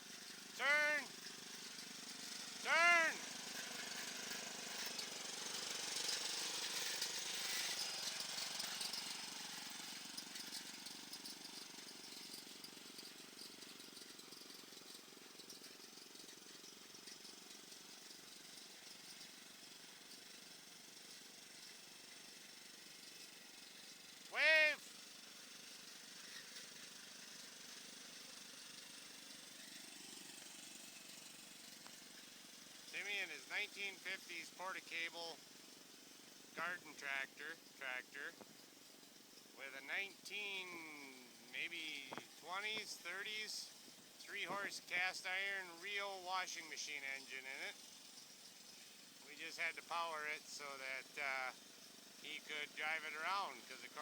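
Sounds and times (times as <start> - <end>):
small engine putter: 0.0 - 2.6, 3.2 - 44.7, 45.3 - 54.0
old engine puttering: 0.0 - 20.4
loud pitched call: 0.6 - 1.1, 2.6 - 3.2, 24.4 - 24.8.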